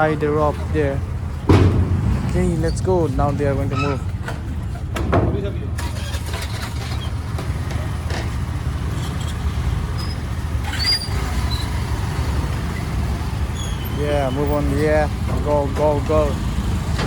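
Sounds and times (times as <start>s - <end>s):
boat engine rumble: 0.0s - 17.0s.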